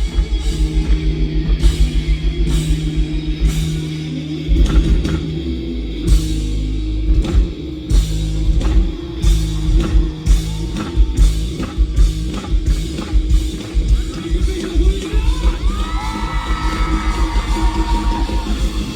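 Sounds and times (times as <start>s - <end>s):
bass and guitars: 0.0s - 18.9s.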